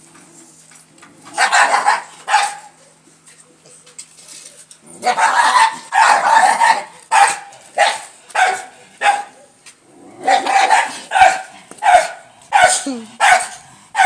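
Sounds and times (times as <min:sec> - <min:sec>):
dog barking: 0:01.4 - 0:02.8, 0:05.0 - 0:09.5, 0:10.3 - 0:14.0.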